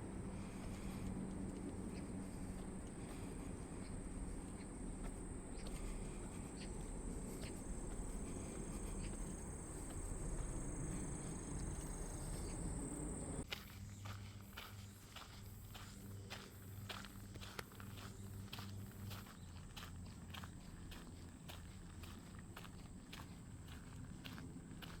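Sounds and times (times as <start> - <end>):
low outdoor rumble: 0.0 - 25.0
footsteps on a path: 0.2 - 25.0
insects calling high-pitched: 5.1 - 13.4.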